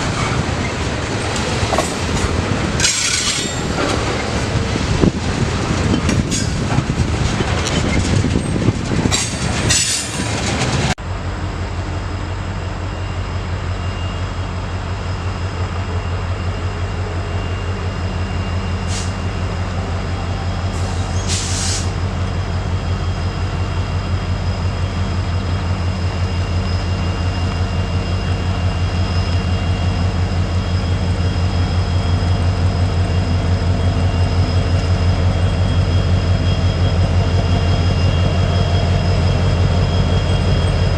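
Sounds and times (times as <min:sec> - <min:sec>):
diesel locomotive throbbing: 0:00.0 - 0:40.9
train rolling past: 0:00.0 - 0:40.9
wheel squeal: 0:02.8 - 0:04.4, 0:12.8 - 0:40.9.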